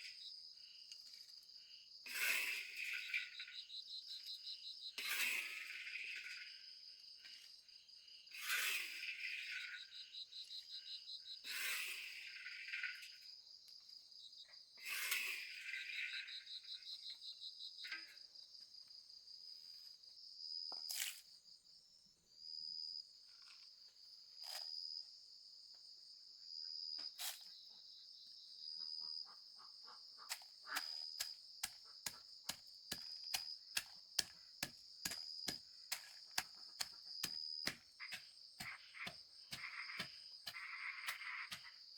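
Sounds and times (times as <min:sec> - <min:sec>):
insects trilling: 0:01.5 - 0:17.9, 0:27.4 - 0:41.9.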